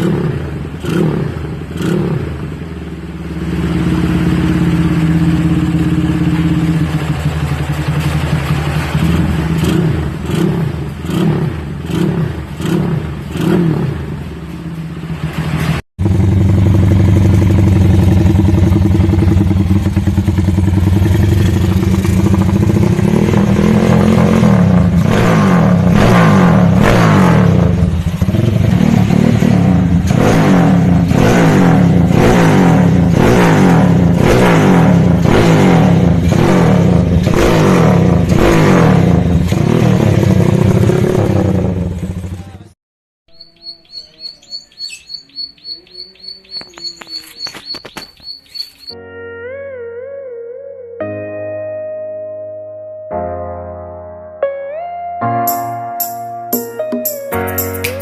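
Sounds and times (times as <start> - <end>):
motorcycle engine revving: 0.0 - 42.8.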